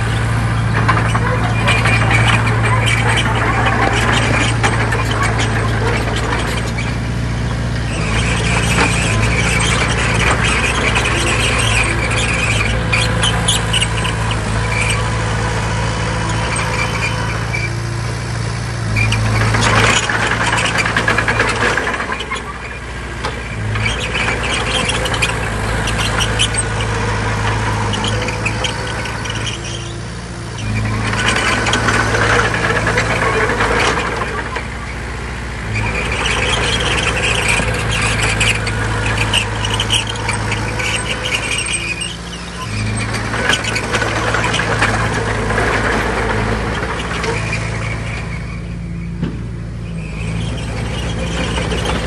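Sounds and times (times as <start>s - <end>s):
crawler tracks squealing and clanking: 0.0s - 52.0s
diesel engine running under load: 0.0s - 52.0s.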